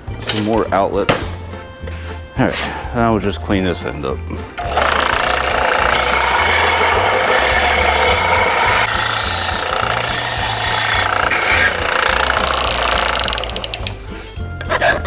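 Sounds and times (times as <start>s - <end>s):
power tool grinding metal pipe: 4.0s - 15.0s.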